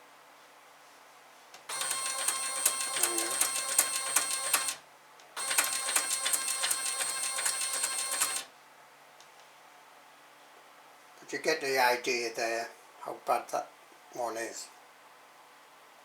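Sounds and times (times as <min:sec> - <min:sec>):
stepper motor whine and ticking: 0:01.7 - 0:04.8, 0:05.4 - 0:08.5.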